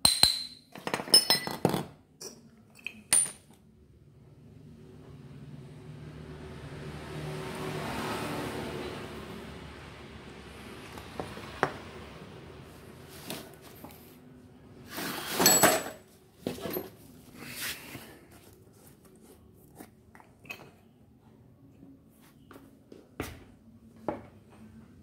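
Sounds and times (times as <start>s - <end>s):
metal scrape: 14.8s - 15.8s
metal parts clicking and clinking: 15.4s - 16.9s.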